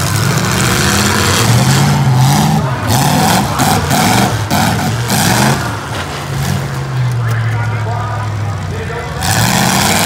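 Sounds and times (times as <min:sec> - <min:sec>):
dense roar: 0:00.0 - 0:05.8, 0:09.1 - 0:10.0
car engines revving hard: 0:00.0 - 0:10.0.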